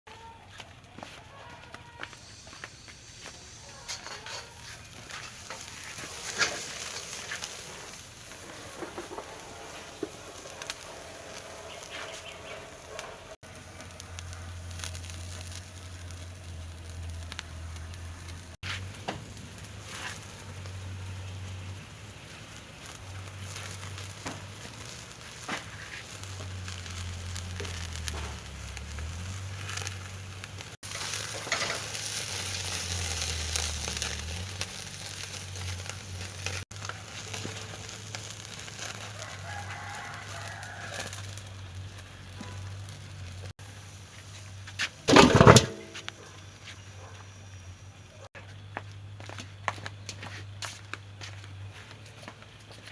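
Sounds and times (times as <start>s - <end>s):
light crackles: 0.1s - 52.9s
rooster crowing: 39.0s - 41.5s.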